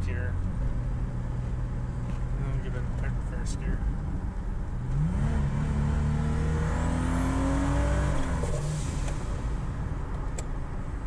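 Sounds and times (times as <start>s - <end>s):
car engine revving: 4.7s - 10.0s.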